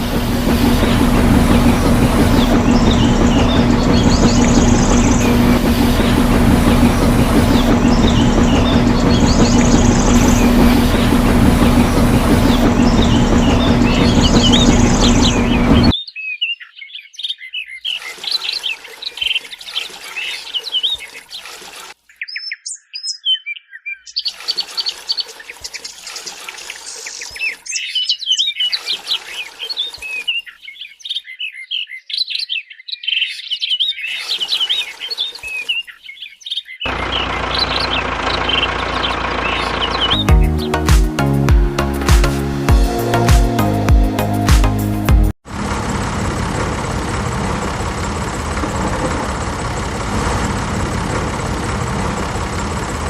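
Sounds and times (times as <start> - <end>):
small birds chirping: 0.0 - 41.2.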